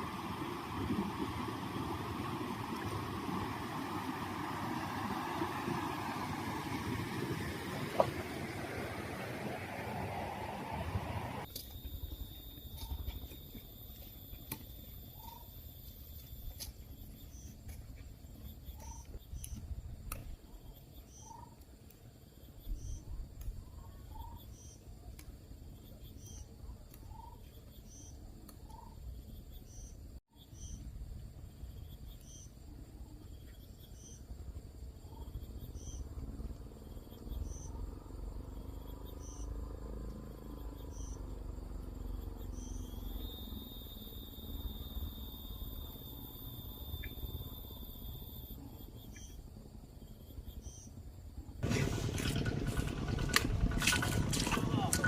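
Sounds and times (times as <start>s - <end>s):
high insect drone: 11.4s - 25.0s, 27.2s - 55.0s
bird chirps: 18.5s - 19.6s, 20.5s - 21.6s, 22.6s - 24.9s, 25.7s - 30.9s, 35.1s - 36.1s, 37.1s - 37.9s, 38.6s - 39.6s, 40.6s - 41.3s, 42.0s - 44.1s, 46.8s - 47.5s, 48.9s - 51.0s
low rumble: 51.6s - 55.0s.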